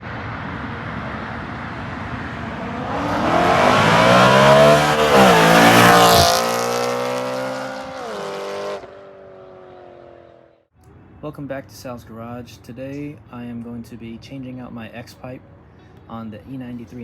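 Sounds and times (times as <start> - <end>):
car exhaust accelerating hard: 0.0 - 10.5.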